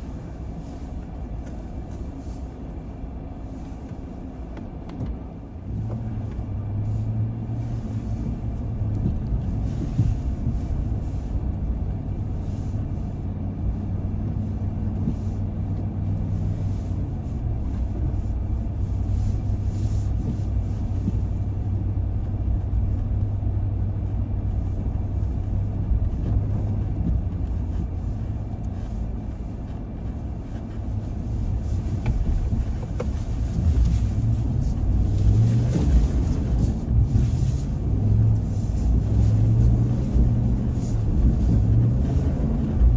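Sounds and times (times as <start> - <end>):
car engine and road rumble: 0.0 - 42.9.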